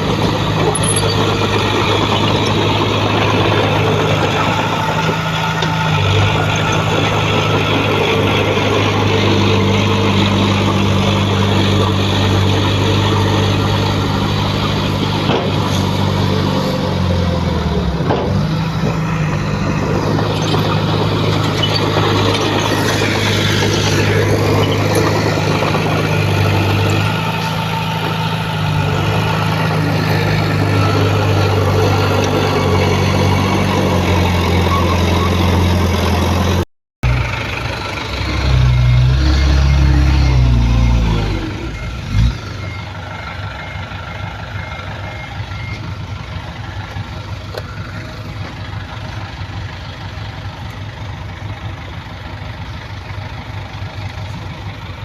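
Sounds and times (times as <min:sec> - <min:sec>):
diesel engines running: 0:00.0 - 0:55.0
faint reversing beeper: 0:38.0 - 0:46.8.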